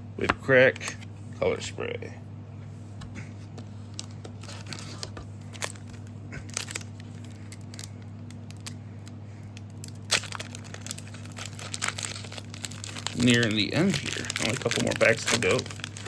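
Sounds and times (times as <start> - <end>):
wrapper crinkling and tearing: 4.0 - 8.8, 9.6 - 16.0.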